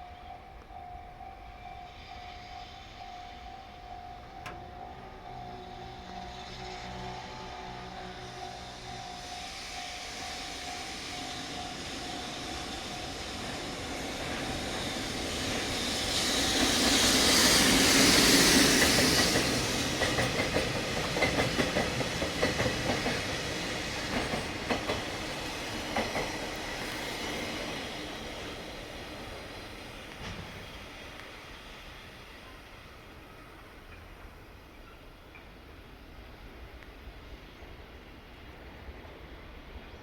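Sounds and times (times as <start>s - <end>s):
freight train passing: 0.0s - 40.0s
wheels clacking over rail joints: 11.4s - 31.4s.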